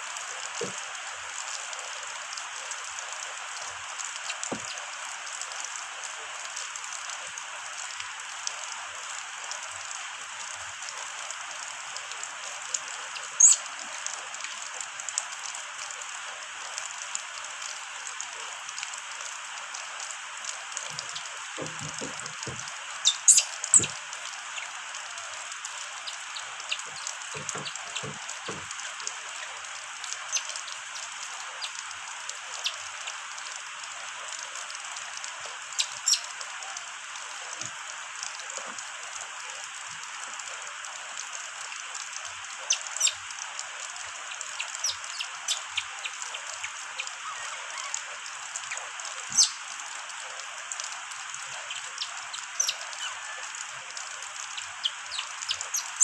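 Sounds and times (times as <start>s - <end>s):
steady rain hissing: 0.0s - 56.0s
drops tapping on a surface: 21.6s - 22.7s.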